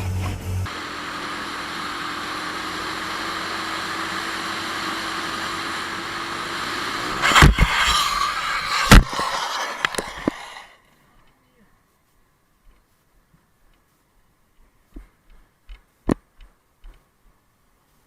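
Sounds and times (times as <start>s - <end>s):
scraping noise: 7.0s - 10.8s
car crash impact: 7.1s - 10.7s
sharp bang: 7.2s - 10.7s.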